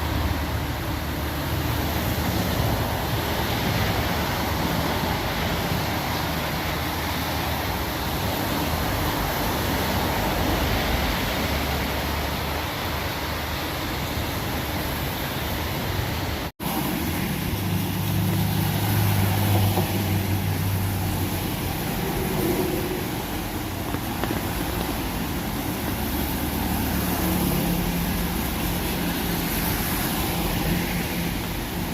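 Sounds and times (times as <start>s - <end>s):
heavy rain hiss: 0.0s - 31.9s
traffic on wet road: 0.0s - 31.9s
vehicle engine hum: 0.0s - 31.9s.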